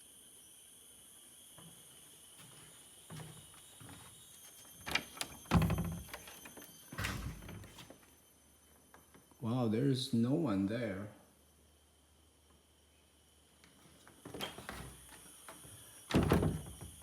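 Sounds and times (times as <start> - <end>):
knocks and thuds: 5.5 - 6.2.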